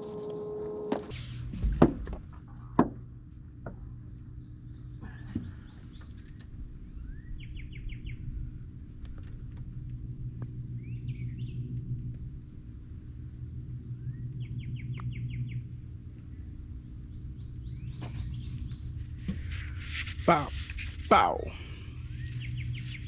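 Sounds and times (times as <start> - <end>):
steady low hum: 0.0 - 23.0
birds chirping: 4.0 - 6.4, 14.0 - 19.6, 21.1 - 23.0.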